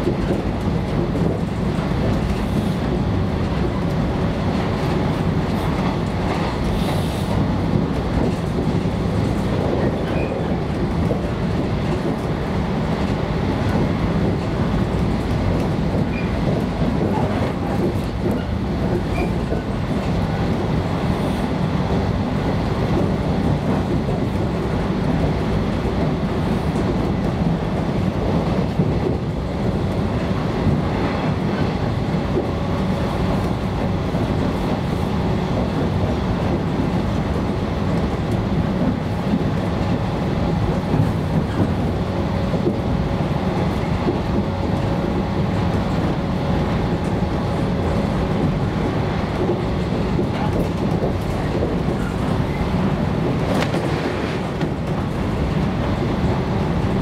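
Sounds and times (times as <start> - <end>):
train wheels on rails: 0.0 - 57.0
wheels clicking over rail joints: 13.0 - 20.4, 46.9 - 55.8.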